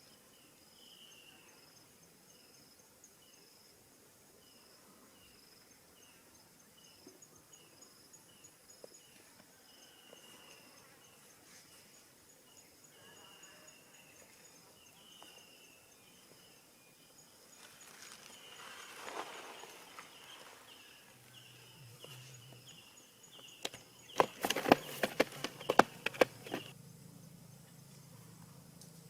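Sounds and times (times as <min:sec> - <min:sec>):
insects chirping and buzzing: 0:00.0 - 0:29.0
sharp clicks and knocks: 0:23.6 - 0:26.7.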